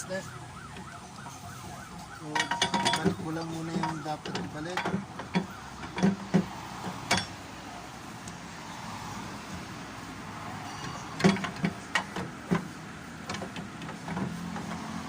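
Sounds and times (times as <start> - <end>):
metal parts clinking and knocking: 2.3 - 6.3, 10.7 - 12.2.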